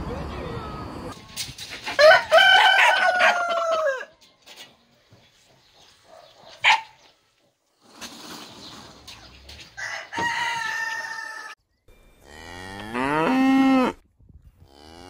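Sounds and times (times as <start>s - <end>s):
rooster crowing: 2.0s - 4.1s, 9.8s - 11.6s.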